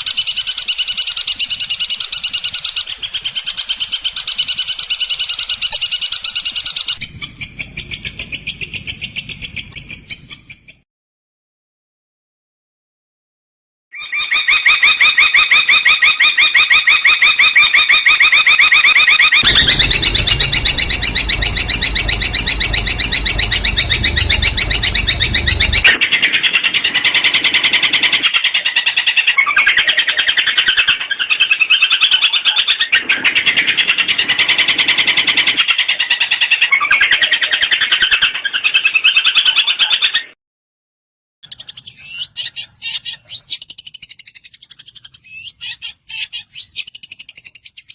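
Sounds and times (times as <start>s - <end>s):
shrike singing: 19.4s - 25.9s.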